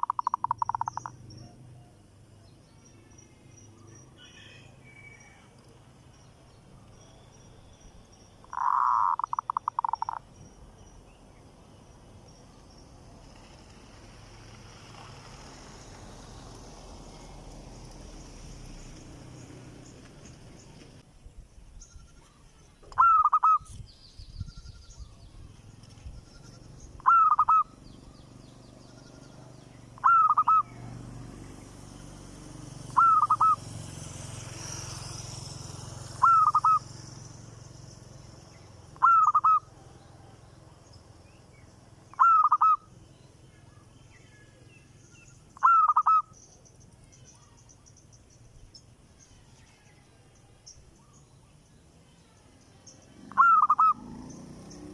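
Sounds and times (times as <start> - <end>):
bird calling: 0.0 - 2.0, 8.4 - 10.3, 21.8 - 23.8, 26.3 - 30.9, 32.9 - 33.6, 36.2 - 36.9, 38.9 - 39.8, 42.1 - 42.9, 45.1 - 46.6, 53.2 - 54.9.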